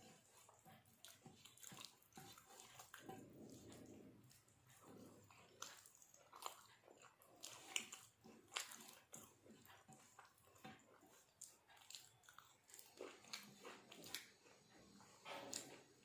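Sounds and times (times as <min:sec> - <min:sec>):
person chewing food: 0:00.0 - 0:16.0
soft mouth clicks and smacks: 0:00.4 - 0:16.0.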